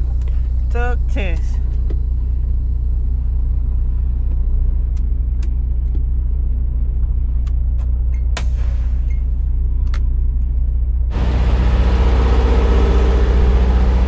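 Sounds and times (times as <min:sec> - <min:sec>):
diesel truck engine idling: 0:00.0 - 0:08.1, 0:11.1 - 0:14.0.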